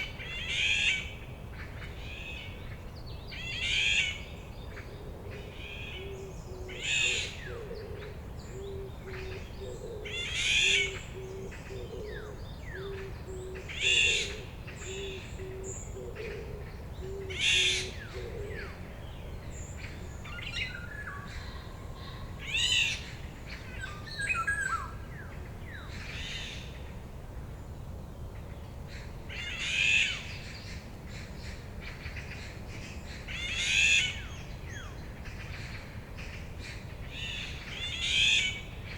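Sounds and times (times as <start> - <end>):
quieter bird calls: 0.0 - 26.8.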